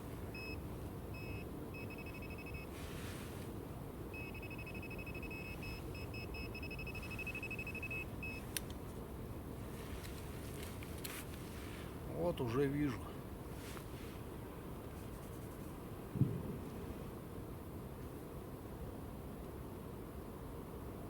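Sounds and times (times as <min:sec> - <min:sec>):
metal detector beeping: 0:00.4 - 0:00.6, 0:01.2 - 0:02.7, 0:04.2 - 0:08.5.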